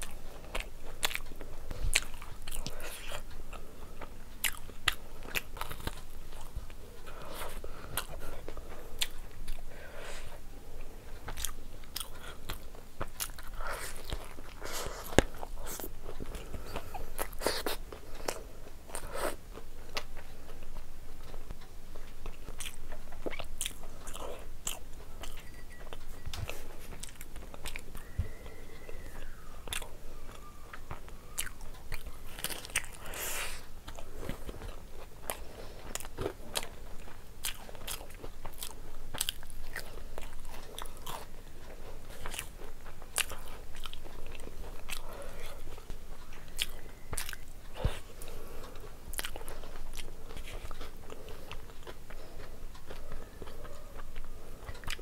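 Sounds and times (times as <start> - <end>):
crunching crisp snacks: 22.2 - 55.0.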